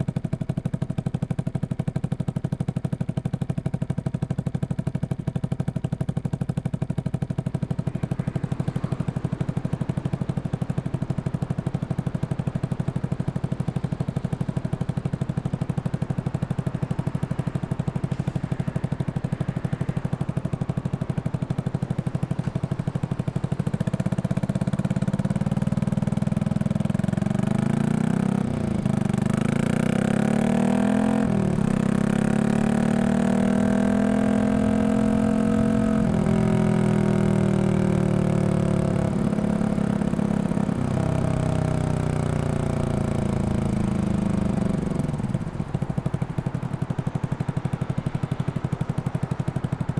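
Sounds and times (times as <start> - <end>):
motorcycle engine revving: 5.4 - 49.9
gear changes: 31.4 - 49.9.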